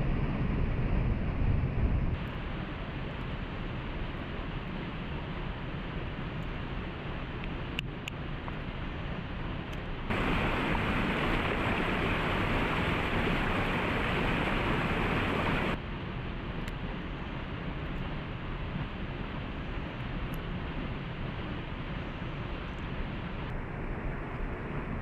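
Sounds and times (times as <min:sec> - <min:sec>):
waterfall rushing: 0:10.1 - 0:15.8.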